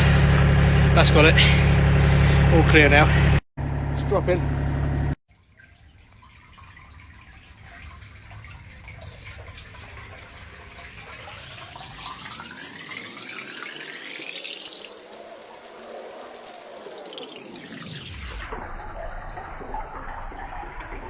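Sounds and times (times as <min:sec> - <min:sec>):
water rushing through drain: 0:05.3 - 0:21.0
hollow whooshing rising pitch: 0:11.0 - 0:21.0.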